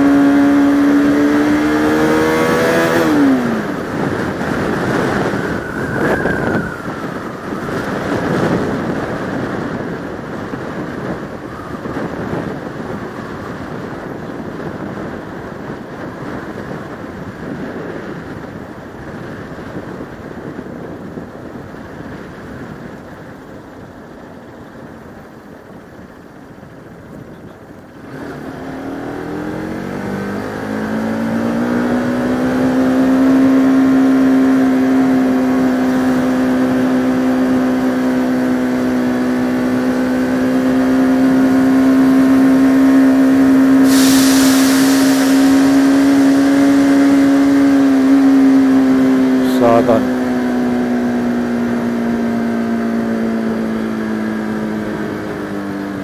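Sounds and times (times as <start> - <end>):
motorcycle engine: 0.0 - 20.4, 21.3 - 56.0
wind noise: 0.0 - 56.0
rush of hiss: 43.8 - 46.4.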